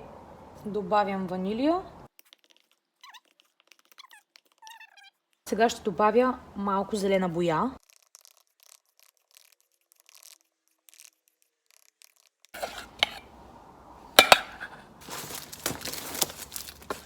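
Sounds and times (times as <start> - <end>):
utensil clinking against bowl: 12.6 - 13.2, 14.2 - 14.8
scraping and rustling: 12.6 - 13.3, 14.2 - 17.0.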